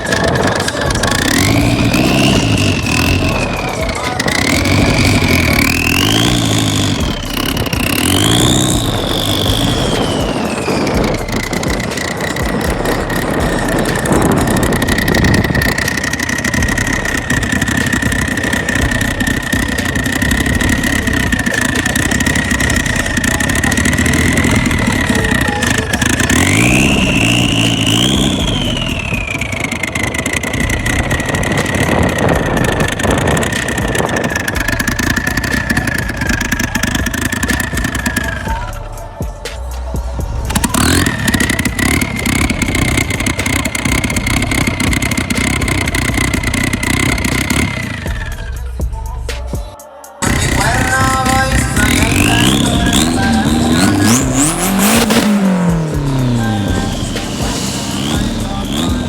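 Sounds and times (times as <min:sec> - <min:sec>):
car engine idling and revving: 0:00.0 - 0:59.0
high whine: 0:00.0 - 0:59.0.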